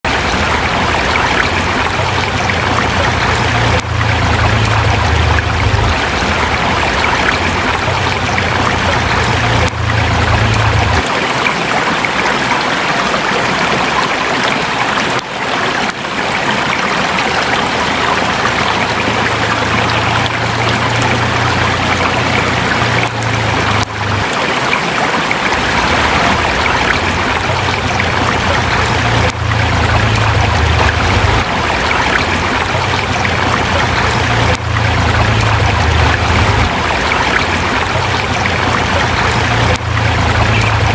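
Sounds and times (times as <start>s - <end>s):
river flowing over rocks: 0.0s - 40.9s
low rumble: 0.2s - 11.0s, 25.6s - 40.9s.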